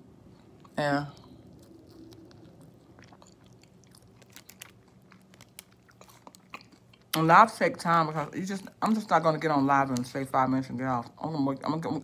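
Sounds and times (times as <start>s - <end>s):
faint chewing with crunches: 0.2s - 7.3s.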